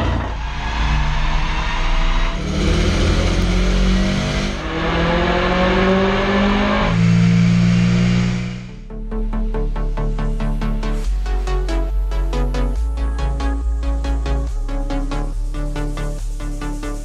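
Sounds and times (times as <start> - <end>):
car engine revving: 0.0 - 8.9.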